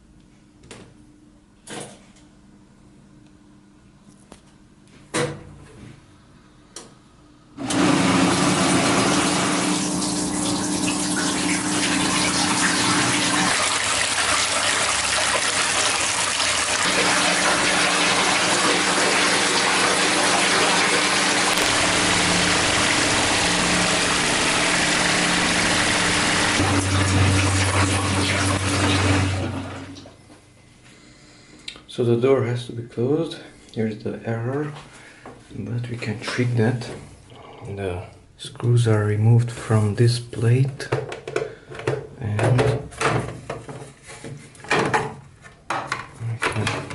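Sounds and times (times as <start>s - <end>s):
washing machine motor hum: 7.6s - 30.2s.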